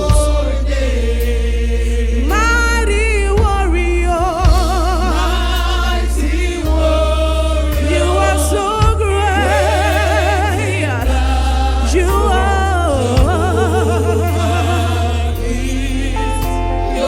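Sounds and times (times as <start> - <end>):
drum hits: 0.0 - 0.6, 3.4 - 5.9, 13.1 - 16.5
band with deep bass: 0.0 - 17.0
choir singing: 0.0 - 17.0.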